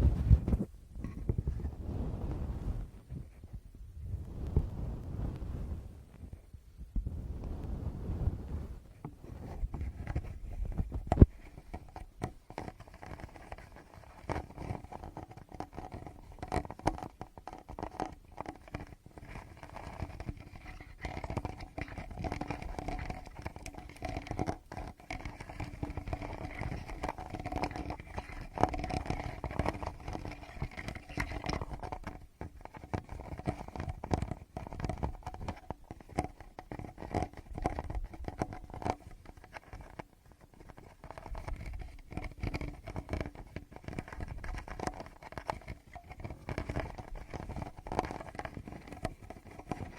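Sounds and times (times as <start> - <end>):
fingertips tapping on microphone: 8.9 - 49.9.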